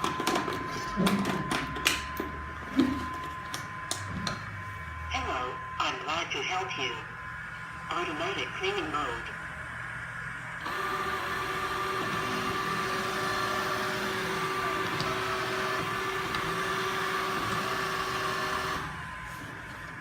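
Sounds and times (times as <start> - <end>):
robot vacuum whirring hum: 10.6 - 20.0.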